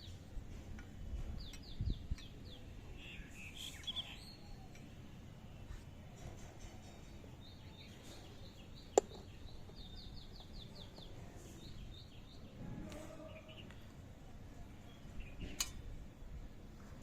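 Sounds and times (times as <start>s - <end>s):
small bird chirping: 1.4s - 5.0s, 6.8s - 12.6s.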